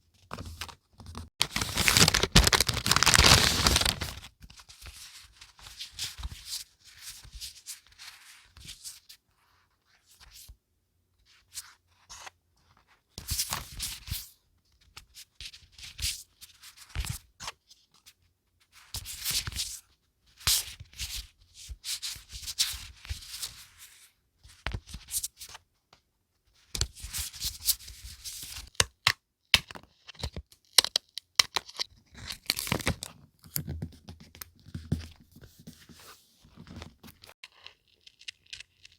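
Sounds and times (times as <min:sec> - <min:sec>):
paper being handled and torn: 0:01.4 - 0:04.3.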